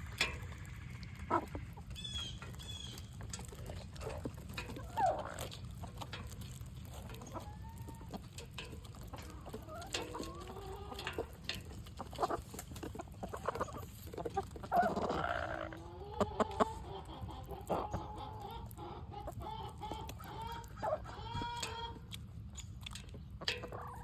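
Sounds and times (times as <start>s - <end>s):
beaks pecking at food: 0.0s - 24.0s
chickens clucking: 0.0s - 24.0s
chicken squawk: 14.6s - 22.0s.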